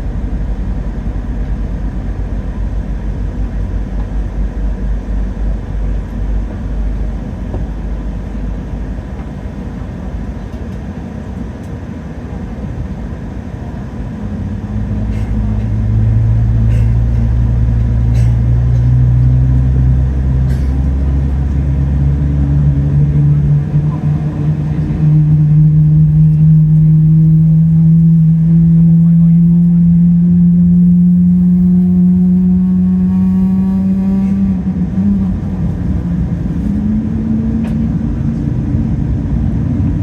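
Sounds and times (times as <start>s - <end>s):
aircraft rolling rumble: 0.0s - 40.0s
jet engines spooling up: 13.9s - 31.8s.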